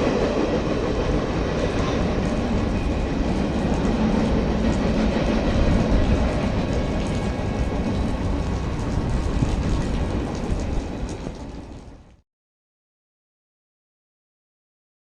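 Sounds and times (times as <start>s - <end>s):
freight train wheels rumbling: 0.0s - 12.2s
heavy rain hissing: 1.0s - 12.1s.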